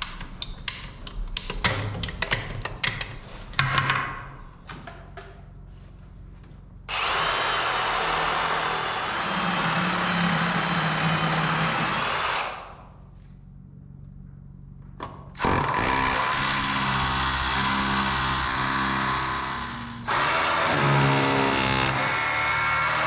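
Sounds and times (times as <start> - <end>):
handheld power tool running: 6.9 - 12.8, 15.4 - 23.0.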